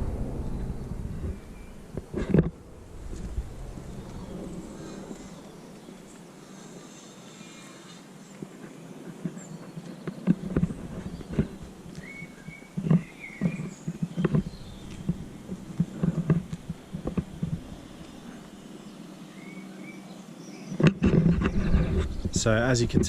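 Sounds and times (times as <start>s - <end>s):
faint low hum: 0.0s - 9.1s, 10.3s - 19.9s
footsteps on stone paving: 8.3s - 18.6s.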